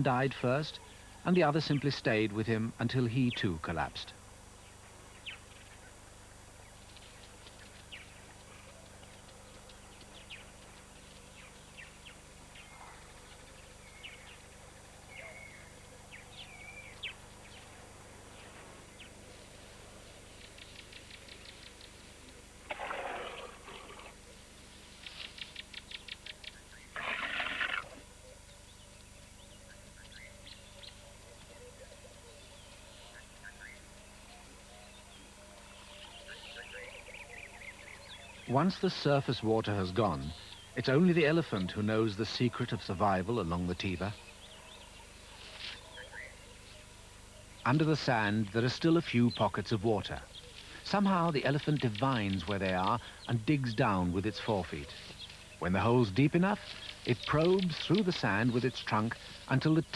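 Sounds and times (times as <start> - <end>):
harsh noisy animal calls: 22.7 - 24.2, 26.9 - 28.1.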